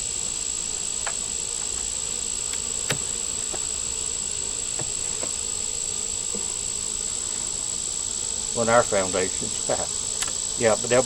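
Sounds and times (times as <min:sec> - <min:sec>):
honeybees buzzing: 0:00.0 - 0:11.0
wooden hive frames clicking: 0:01.0 - 0:06.9, 0:10.0 - 0:10.8.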